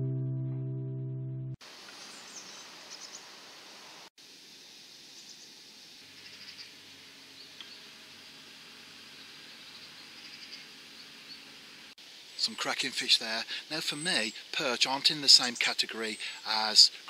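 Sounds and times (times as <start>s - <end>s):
outdoor background hiss: 1.6s - 17.0s
small birds chirping: 1.9s - 3.4s, 5.1s - 8.0s, 9.0s - 12.8s.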